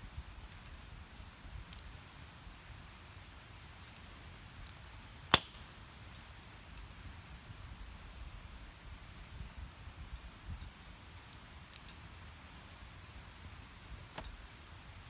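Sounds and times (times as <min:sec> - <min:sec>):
wood fire crackling: 0:00.1 - 0:15.0
loud sharp fire pop: 0:05.3 - 0:05.7.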